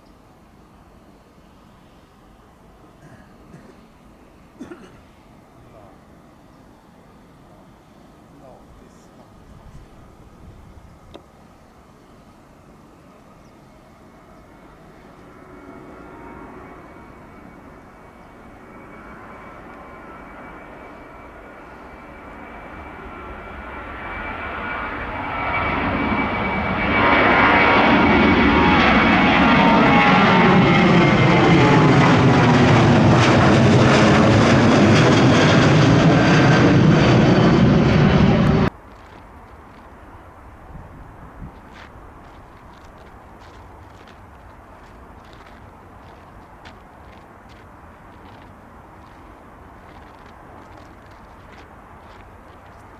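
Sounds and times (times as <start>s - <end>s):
jet engines at takeoff power: 0.0s - 52.9s.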